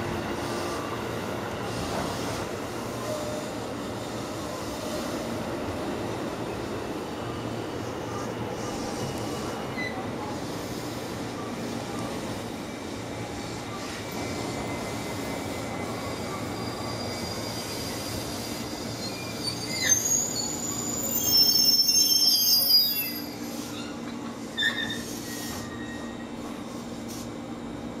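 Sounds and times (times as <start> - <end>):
train wheels rumbling on rails: 0.0 - 28.0
high-pitched brake squeals: 9.7 - 10.1, 15.6 - 26.6.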